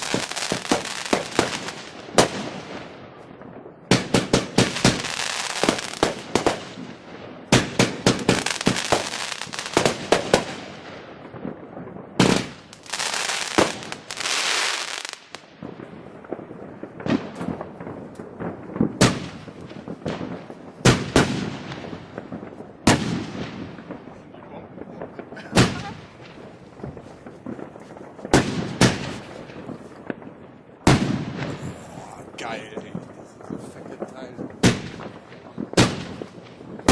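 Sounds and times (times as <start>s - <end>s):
fireworks hissing rushes: 0.0s - 2.8s, 4.0s - 6.9s, 7.6s - 10.8s, 12.2s - 15.4s, 31.3s - 36.9s
fireworks bangs and crackle: 0.0s - 36.9s.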